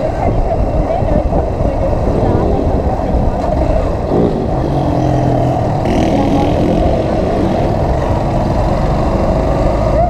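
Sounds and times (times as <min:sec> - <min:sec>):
wind and road noise: 0:00.0 - 0:10.0
motorcycle engine revving: 0:02.0 - 0:10.0.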